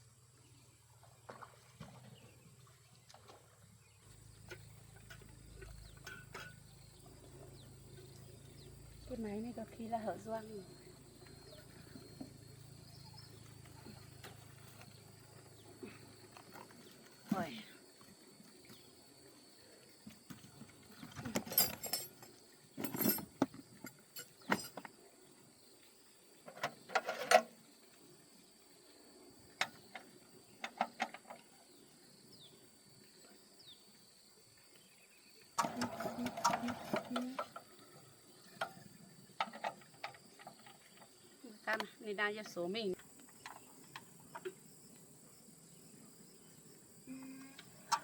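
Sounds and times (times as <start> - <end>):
tools and metal parts clattering: 5.9 - 6.7, 20.9 - 24.9, 26.5 - 27.5, 35.6 - 37.7.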